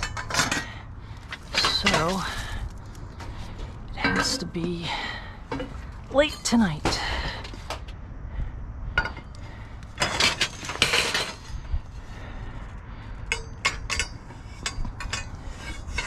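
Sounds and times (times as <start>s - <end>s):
scrap metal clanking: 0.0s - 7.8s, 10.0s - 11.7s, 13.3s - 16.0s.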